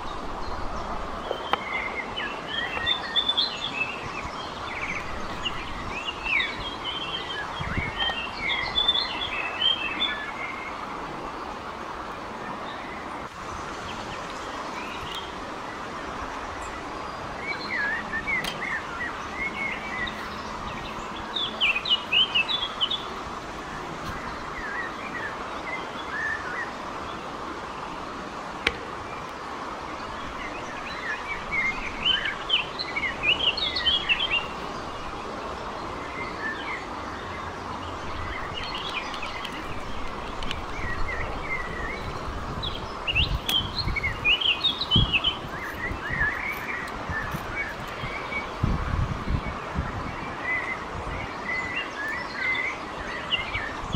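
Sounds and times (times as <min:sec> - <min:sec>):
outdoor background hiss: 0:00.0 - 0:53.9
songbirds chirping: 0:00.0 - 0:53.9.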